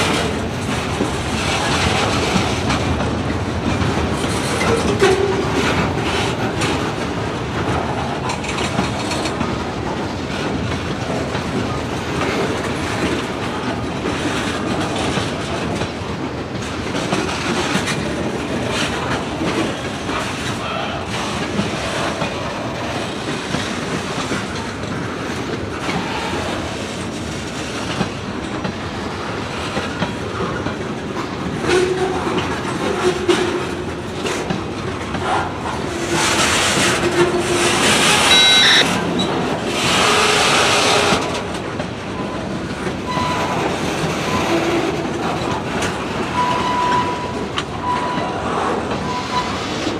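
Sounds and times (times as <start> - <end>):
train wheels clacking over rails: 0.0 - 49.9
train wheel squeal: 36.0 - 41.3, 42.2 - 45.6, 46.3 - 49.9.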